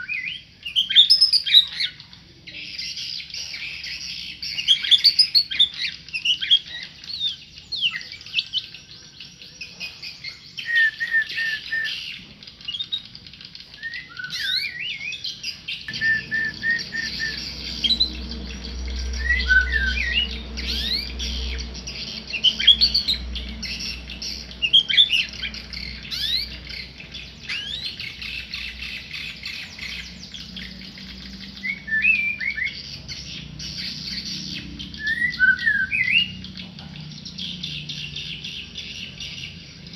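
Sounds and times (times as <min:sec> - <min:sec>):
songbird singing whistled notes: 0:00.0 - 0:39.9
low rumble: 0:15.9 - 0:31.6.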